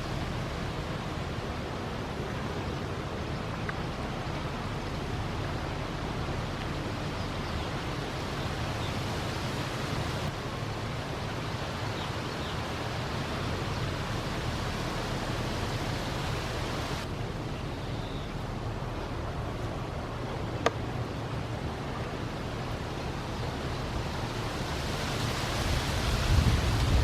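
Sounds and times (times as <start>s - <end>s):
steady rushing noise: 18.4s - 27.0s.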